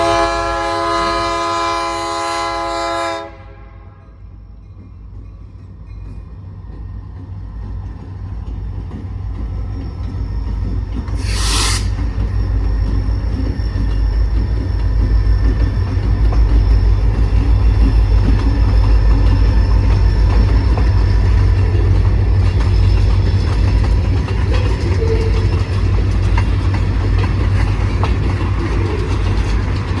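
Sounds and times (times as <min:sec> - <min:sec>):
freight train horn blast: 0:00.0 - 0:04.2
rumble of train passing: 0:00.0 - 0:30.0
brief hiss: 0:11.2 - 0:12.1.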